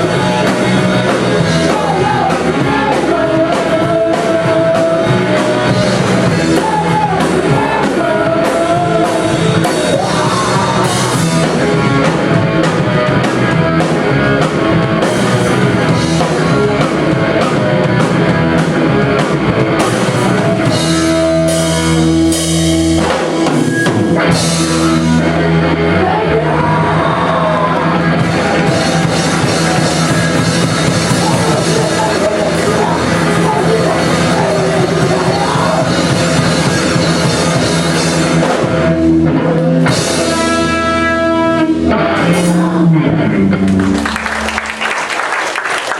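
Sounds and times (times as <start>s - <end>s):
person singing: 0.0s - 11.7s, 24.2s - 37.6s, 38.3s - 43.3s
drum kit: 0.0s - 45.9s
guitars: 0.0s - 45.9s
rock band playing live: 0.0s - 45.9s.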